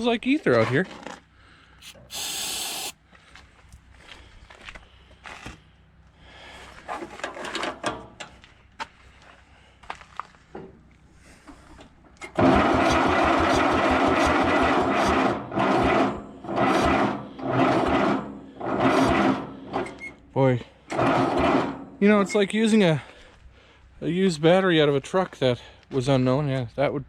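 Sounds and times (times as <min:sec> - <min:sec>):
tractor engine cranking: 0:12.2 - 0:22.1.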